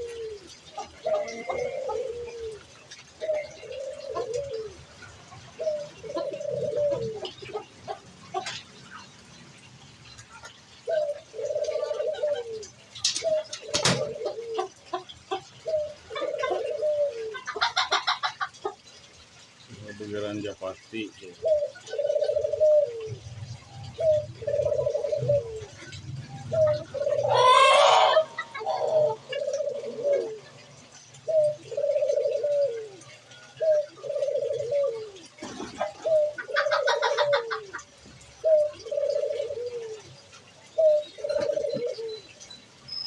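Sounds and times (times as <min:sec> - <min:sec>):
pigeon cooing: 0:00.0 - 0:09.1, 0:10.3 - 0:42.5
bird harsh call: 0:26.5 - 0:30.2.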